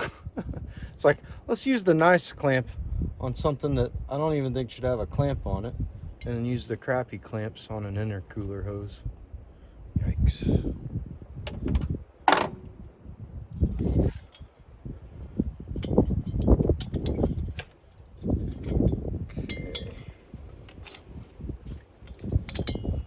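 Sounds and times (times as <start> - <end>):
metal tools clinking: 15.8 - 23.0.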